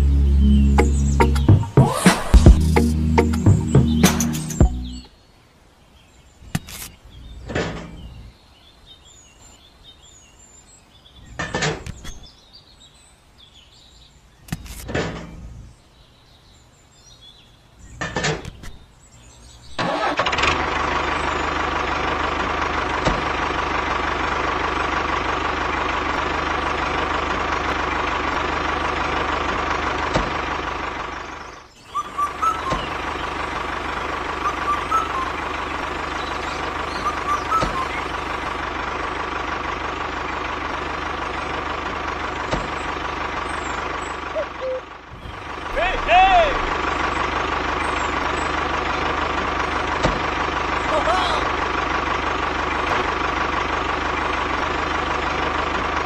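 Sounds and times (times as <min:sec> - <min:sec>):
faint bird chirps: 0:31.4 - 0:38.4, 0:43.5 - 0:48.6.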